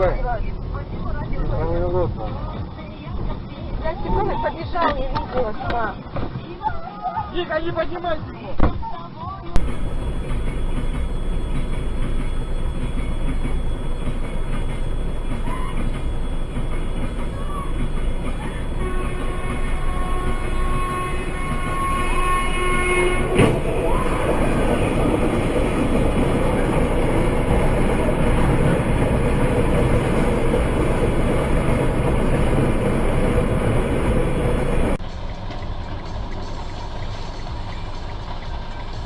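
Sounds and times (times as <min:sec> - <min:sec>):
train rumbling: 0:09.6 - 0:39.0
train horn: 0:18.5 - 0:25.8
sharp bang: 0:23.0 - 0:23.9.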